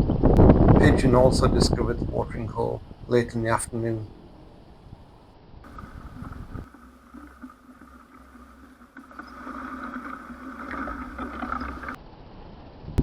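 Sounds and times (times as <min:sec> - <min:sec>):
distant engine droning: 0:02.6 - 0:12.0.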